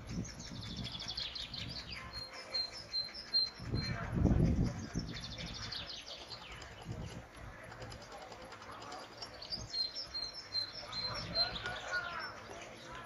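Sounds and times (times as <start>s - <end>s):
small bird chirping: 0.0s - 13.0s.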